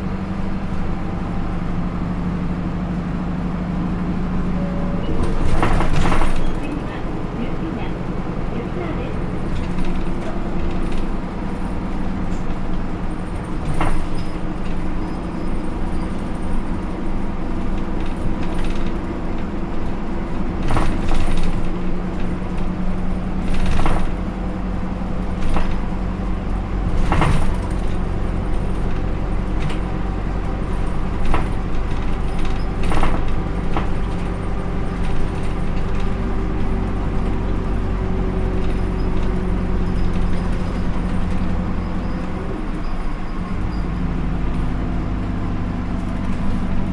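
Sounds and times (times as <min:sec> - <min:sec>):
bus diesel engine running: 0:00.0 - 0:46.9
sharp rattles and clacks: 0:05.2 - 0:42.3.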